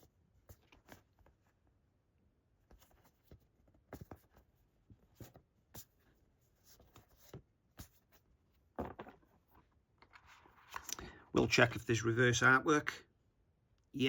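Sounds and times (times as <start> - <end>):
cards being handled: 8.8 - 11.1.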